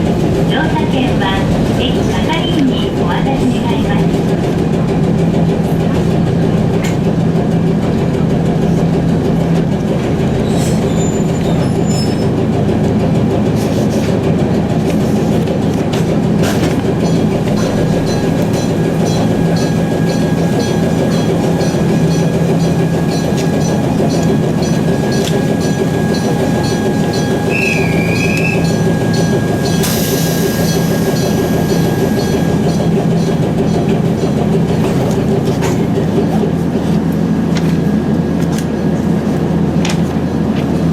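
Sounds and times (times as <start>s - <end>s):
low motor hum: 0.0s - 40.9s
train wheels rumbling on track: 0.0s - 40.9s.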